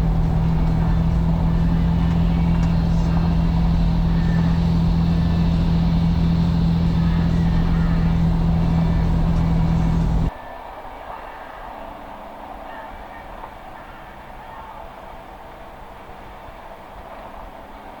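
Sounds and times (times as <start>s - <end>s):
vehicle engine drone: 0.0s - 10.3s
road noise: 0.0s - 10.4s.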